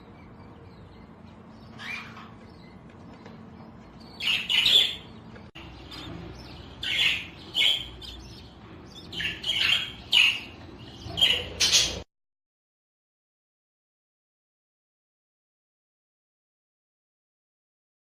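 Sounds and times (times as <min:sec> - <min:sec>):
budgerigars chirping and squawking: 0:00.0 - 0:12.0.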